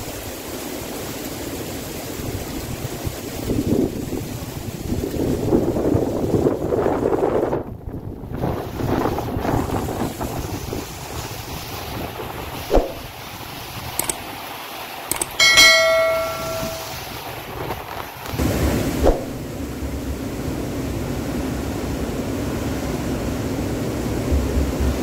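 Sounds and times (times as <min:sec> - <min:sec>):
rain: 0:00.0 - 0:15.4, 0:17.0 - 0:25.0
wind gusting through trees: 0:00.0 - 0:25.0
sharp knocks: 0:15.1 - 0:17.0
metallic clang: 0:15.1 - 0:17.1.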